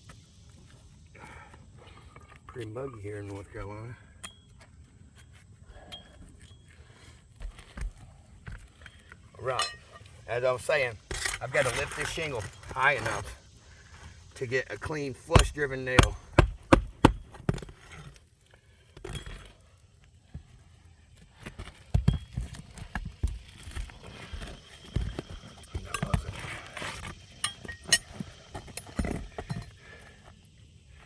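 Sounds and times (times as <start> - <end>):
tools and nails knocking on shingles: 3.3 - 10.1, 10.7 - 18.2, 21.2 - 30.2
shingle scraping as pried up: 6.3 - 19.7, 21.2 - 30.0.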